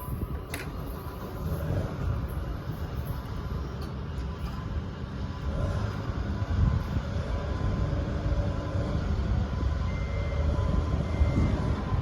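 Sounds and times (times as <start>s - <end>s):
low rumble of passing vehicles: 0.0s - 12.0s.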